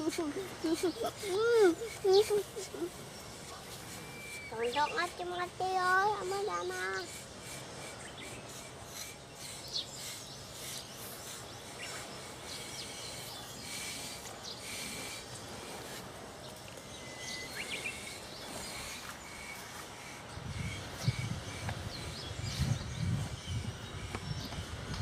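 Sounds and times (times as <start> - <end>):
bird chirps: 0.0 - 25.0.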